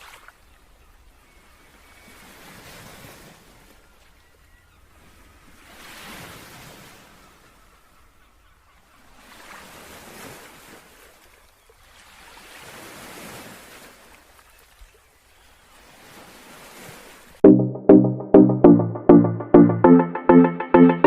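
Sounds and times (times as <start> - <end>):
small waves breaking on beach: 0.0 - 7.8, 9.0 - 17.4.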